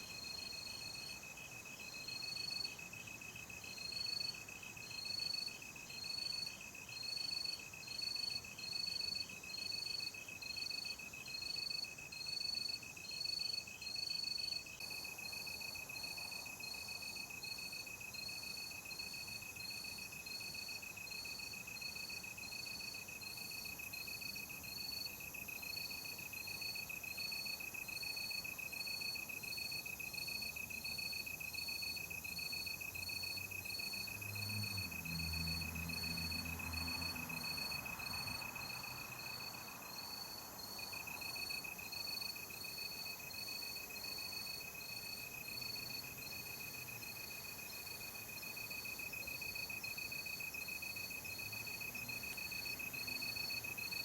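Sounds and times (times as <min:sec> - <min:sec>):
crickets trilling: 0:12.1 - 0:54.0.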